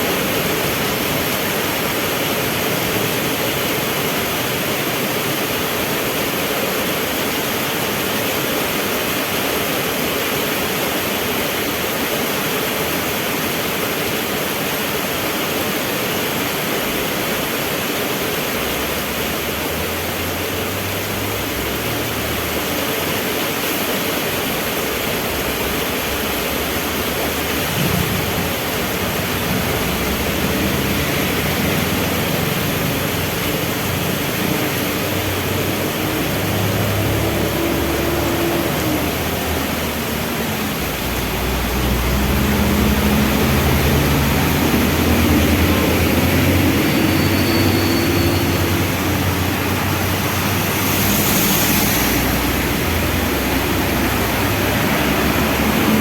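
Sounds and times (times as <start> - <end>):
heavy rain hissing: 0.0 - 56.0
vehicle engines humming: 18.3 - 56.0.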